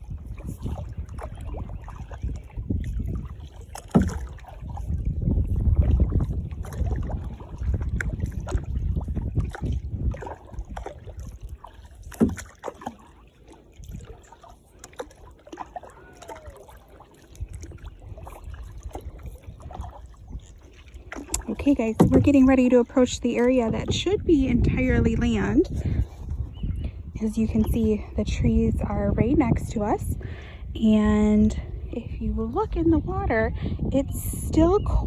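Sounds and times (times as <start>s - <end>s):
paddle strokes sloshing water: 0.0s - 33.9s.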